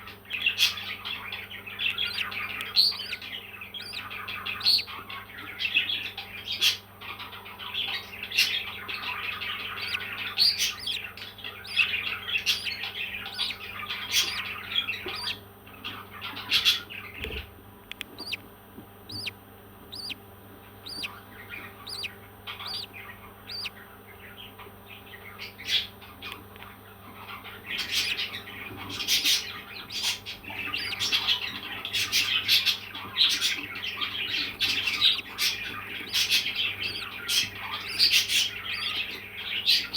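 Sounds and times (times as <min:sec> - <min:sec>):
parrot chirping: 0:01.9 - 0:04.9, 0:09.4 - 0:15.4, 0:18.1 - 0:18.4, 0:19.1 - 0:20.2, 0:20.8 - 0:23.7, 0:27.8 - 0:28.4, 0:29.0 - 0:32.7, 0:33.4 - 0:39.2.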